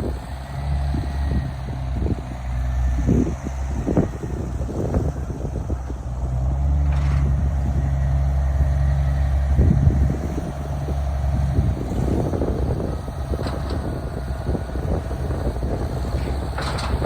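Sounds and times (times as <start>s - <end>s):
vehicle engine running: 0.0s - 17.0s
rattles and knocks: 16.0s - 17.0s.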